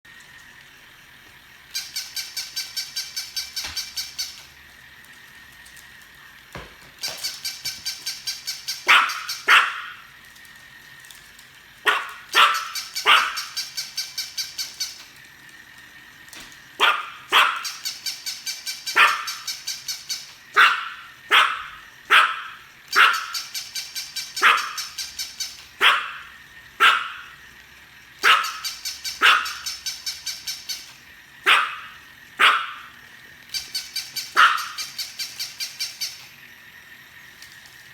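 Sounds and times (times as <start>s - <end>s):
dog barking: 8.9s - 10.0s, 11.8s - 13.5s, 16.8s - 17.8s, 19.0s - 19.4s, 20.6s - 23.4s, 24.4s - 24.9s, 25.8s - 27.3s, 28.2s - 29.7s, 31.4s - 32.9s, 34.3s - 34.8s.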